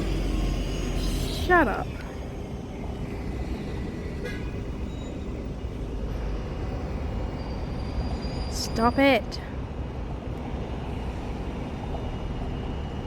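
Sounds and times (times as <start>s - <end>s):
road traffic rumble: 0.0s - 13.0s
short high-pitched squeak: 0.4s - 1.7s.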